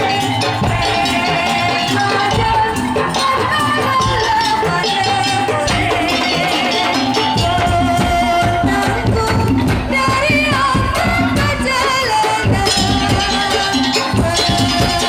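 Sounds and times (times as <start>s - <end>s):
wavering held melody: 0.0s - 8.2s
drumming and percussion: 0.0s - 15.0s.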